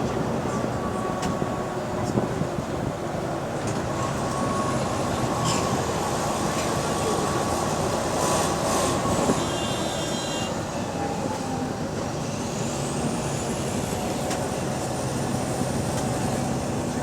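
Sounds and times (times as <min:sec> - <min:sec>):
bus engine running: 0:00.0 - 0:17.0
road noise: 0:00.0 - 0:17.0
high squeal: 0:04.0 - 0:11.0.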